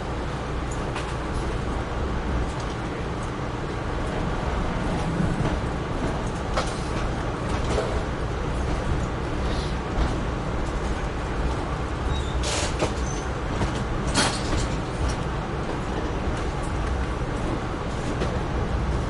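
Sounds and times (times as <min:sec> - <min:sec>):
train rumbling along track: 0:00.0 - 0:19.0.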